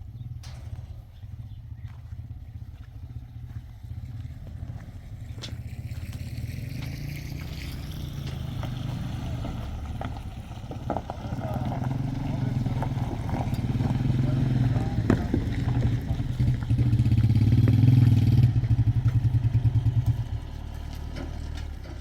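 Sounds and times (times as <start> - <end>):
knocks and clatter: 0.0 - 2.7, 4.5 - 22.0
engine running: 0.0 - 22.0.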